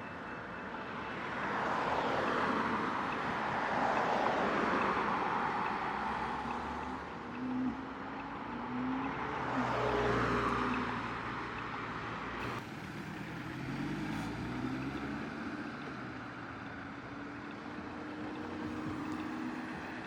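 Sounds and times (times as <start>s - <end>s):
sports car engines driving past: 12.4s - 20.0s.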